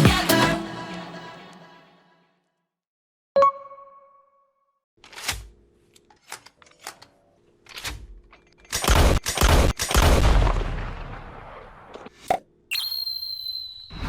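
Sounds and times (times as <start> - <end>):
crackling blasts: 9.1 - 12.0.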